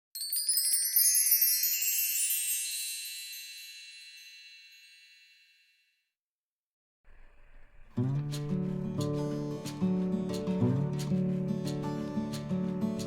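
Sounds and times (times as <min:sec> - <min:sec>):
bell-like chimes ringing: 0:00.2 - 0:06.0.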